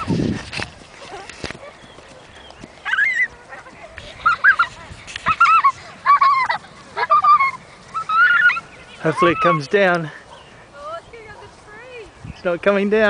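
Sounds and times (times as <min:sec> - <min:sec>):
birds honking: 0:05.3 - 0:12.6.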